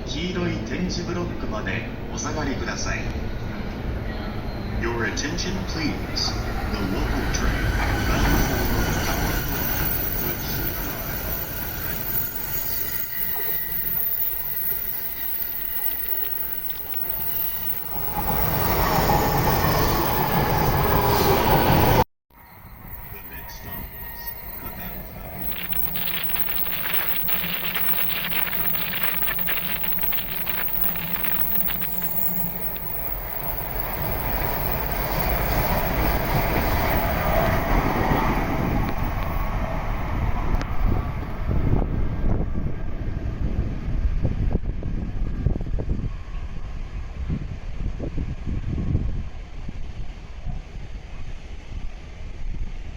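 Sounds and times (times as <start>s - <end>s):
train running on rails: 0.0s - 52.9s
wheels squealing: 3.3s - 39.8s.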